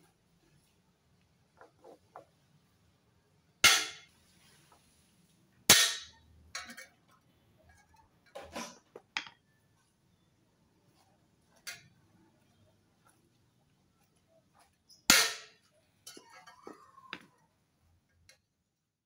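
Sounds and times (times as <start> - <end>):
metal striking motorcycle exhaust: 3.6 - 4.1, 5.7 - 6.2.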